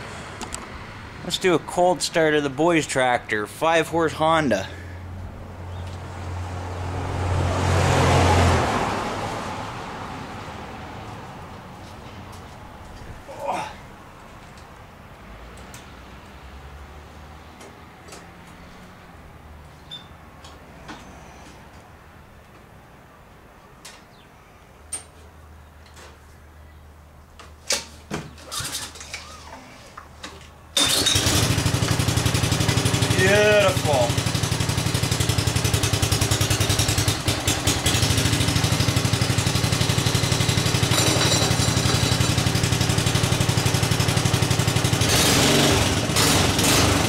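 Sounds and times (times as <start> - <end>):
vehicle passing by: 0.0 - 12.8, 15.2 - 22.4.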